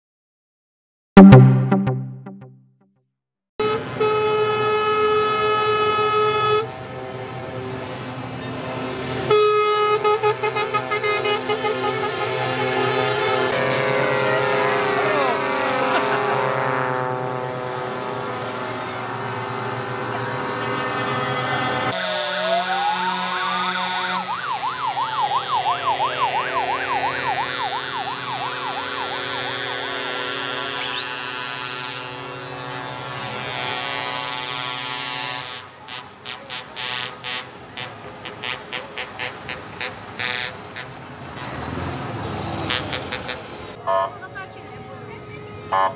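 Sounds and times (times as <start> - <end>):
truck air horn blasts: 3.6 - 7.8, 9.0 - 24.4, 26.1 - 41.7, 42.7 - 45.9
truck engines running: 3.6 - 45.9
siren slow wail: 20.3 - 32.0.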